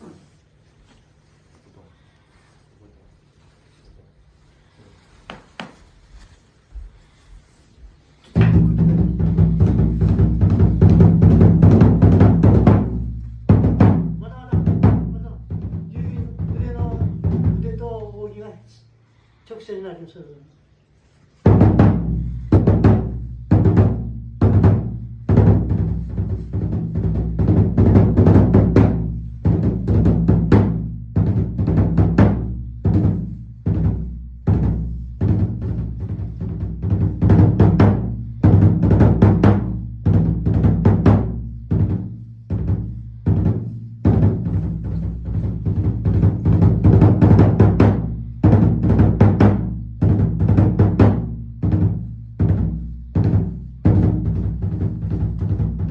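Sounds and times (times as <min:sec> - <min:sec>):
taiko drum booming strikes: 0:08.4 - 0:17.6, 0:21.5 - 0:55.9.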